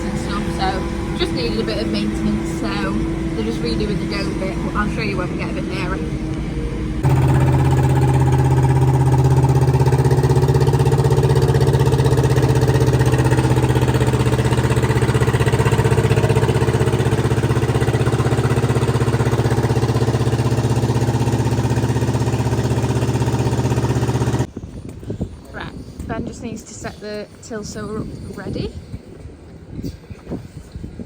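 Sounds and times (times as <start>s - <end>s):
tractor engine running: 0.0s - 24.5s.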